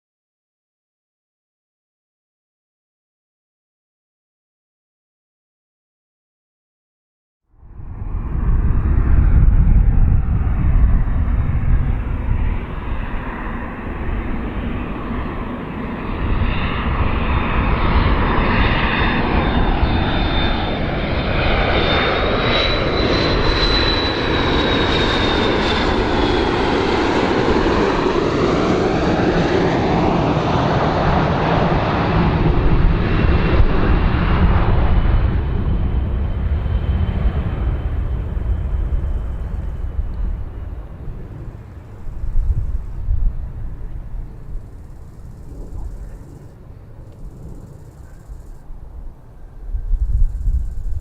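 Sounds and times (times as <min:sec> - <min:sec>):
airplane engines roaring: 0:07.5 - 0:51.0
thin high whine: 0:38.0 - 0:40.4, 0:41.5 - 0:48.9, 0:49.7 - 0:51.0.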